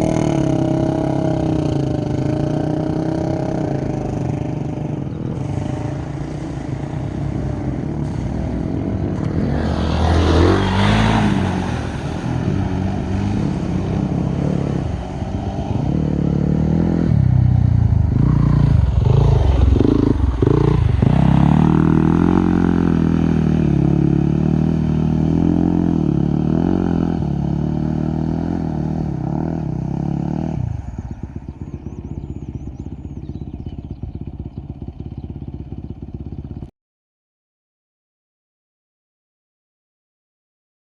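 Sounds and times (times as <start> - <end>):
dirt bike engine revving: 0.0 - 36.3.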